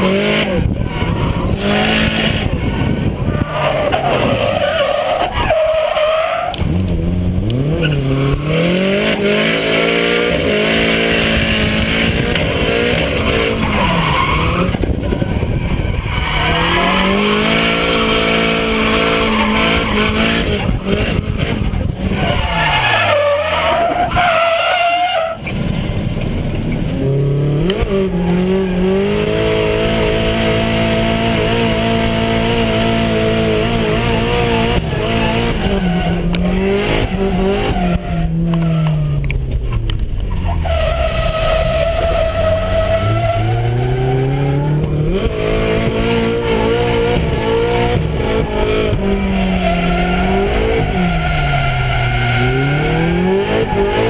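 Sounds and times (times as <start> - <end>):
car engine revving: 0.0 - 54.0
tyre squeal: 15.4 - 21.3, 22.0 - 25.6, 40.2 - 44.8, 48.3 - 54.0.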